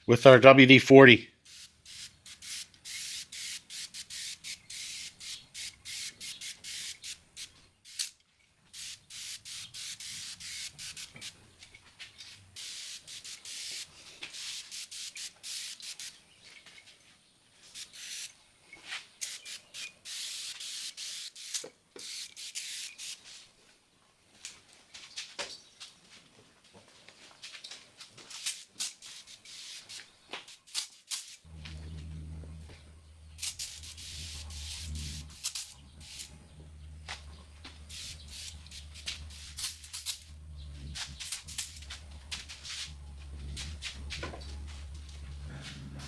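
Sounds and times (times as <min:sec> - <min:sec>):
sprayer hissing bursts: 0:01.4 - 0:08.1, 0:08.7 - 0:11.4, 0:12.2 - 0:16.2, 0:17.7 - 0:18.3, 0:19.2 - 0:23.3, 0:28.5 - 0:30.1, 0:30.7 - 0:45.6.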